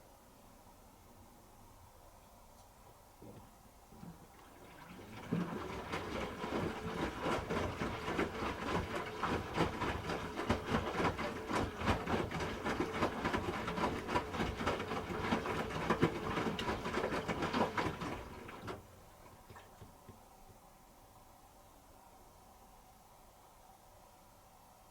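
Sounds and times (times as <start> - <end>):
washing machine drum splashing: 3.2 - 20.2.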